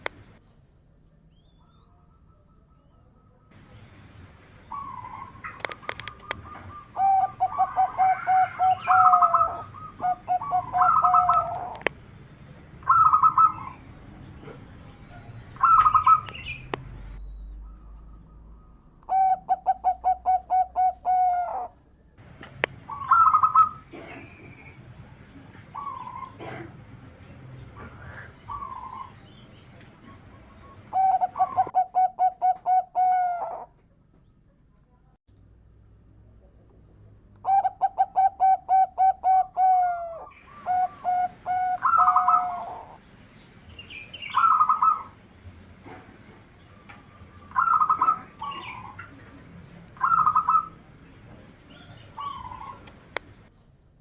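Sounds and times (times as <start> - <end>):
dove rolling trills: 4.6 - 11.9, 12.8 - 13.8, 15.6 - 16.7, 17.6 - 21.8, 22.8 - 24.6, 30.1 - 33.7, 37.4 - 43.0, 44.2 - 45.2, 47.1 - 49.1, 50.0 - 50.8, 51.7 - 53.0
warbling bird call: 4.6 - 11.9, 12.8 - 13.9, 15.5 - 16.7, 22.8 - 23.9, 30.4 - 33.7, 37.4 - 43.0, 44.2 - 45.2, 47.1 - 49.2, 50.0 - 50.8
faint bird calls: 4.6 - 12.0, 12.8 - 21.9, 22.5 - 35.0, 37.4 - 43.1, 46.6 - 49.4, 51.6 - 53.5
dove cooing: 4.7 - 11.9, 12.8 - 13.8, 14.4 - 16.6, 17.6 - 21.8, 22.8 - 24.7, 25.7 - 26.8, 27.7 - 29.2, 30.0 - 33.7, 37.4 - 43.0, 47.2 - 49.2, 50.0 - 50.9, 51.7 - 53.1.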